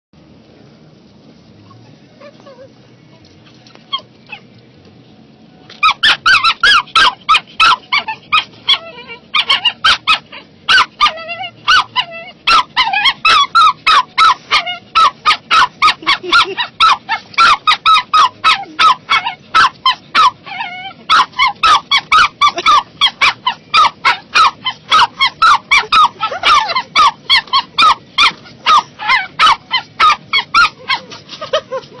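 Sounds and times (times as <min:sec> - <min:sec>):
small dog yapping: 0:05.7 - 0:32.0.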